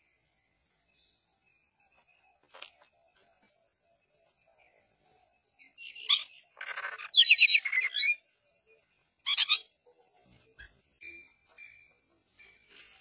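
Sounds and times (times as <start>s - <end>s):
birds squawking: 5.8s - 8.2s.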